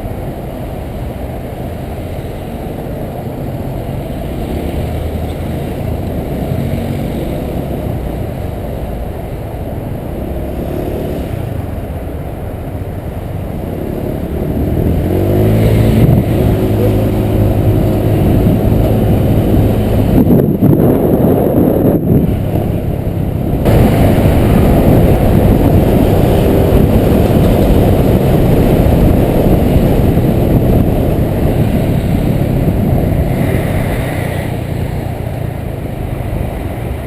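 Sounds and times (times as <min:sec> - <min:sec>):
scooter engine running: 0:13.4 - 0:37.0.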